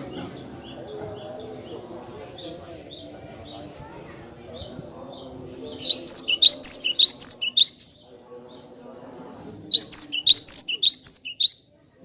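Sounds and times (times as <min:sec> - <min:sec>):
bird singing high chirps: 0:04.6 - 0:08.2, 0:09.7 - 0:11.7.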